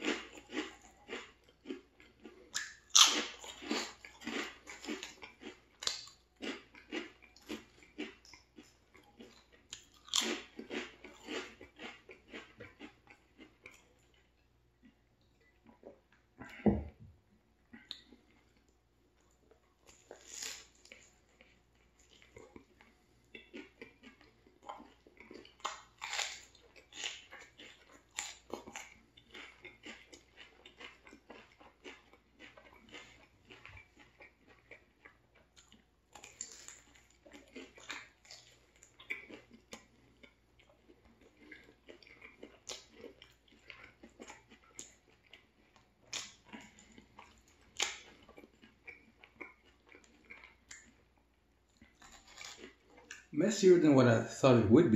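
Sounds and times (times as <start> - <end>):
person chewing crusty sandwich: 0.0 - 53.4.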